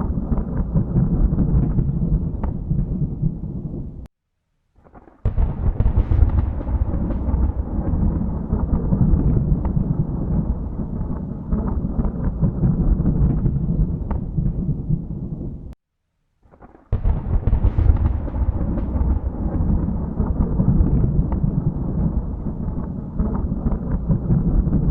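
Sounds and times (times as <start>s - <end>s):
rolling thunder: 0.0s - 4.1s, 5.2s - 15.8s, 16.9s - 24.9s
thunder clap: 0.0s - 4.1s, 4.8s - 15.8s, 16.6s - 24.9s.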